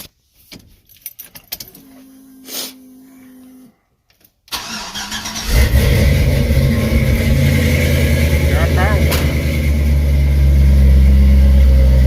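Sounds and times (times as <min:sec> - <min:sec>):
ignition clicks: 0:04.5 - 0:05.4
starter cranking engine: 0:04.5 - 0:09.7.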